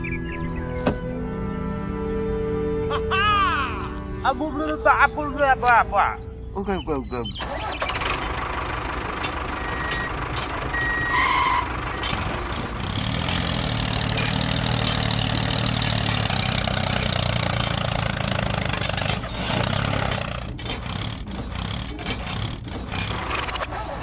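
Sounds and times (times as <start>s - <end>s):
short high beeps: 4.1s - 6.4s
vehicle engine running: 4.1s - 23.6s.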